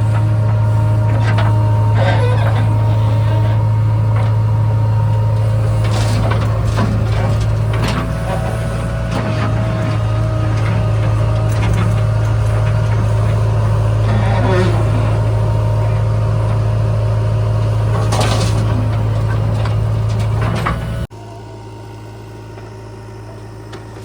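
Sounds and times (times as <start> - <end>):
diesel engine droning: 0.0 - 24.0
knocks and clanks: 5.3 - 16.7, 17.6 - 21.1.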